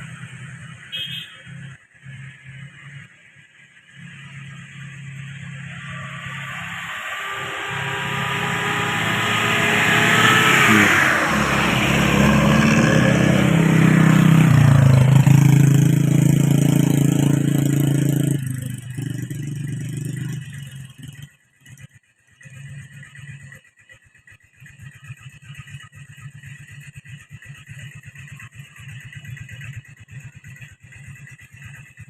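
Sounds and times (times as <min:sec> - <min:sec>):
vehicle engine revving: 0:00.0 - 0:21.8.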